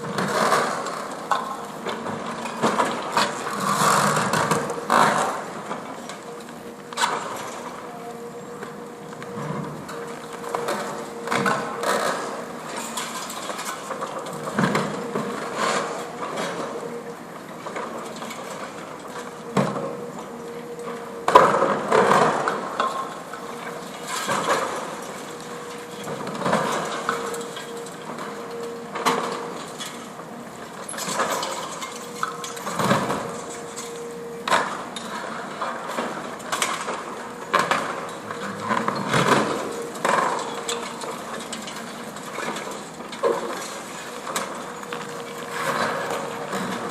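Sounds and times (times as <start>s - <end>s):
excavator hum: 0.0s - 46.9s
falling rubble: 21.3s - 46.9s.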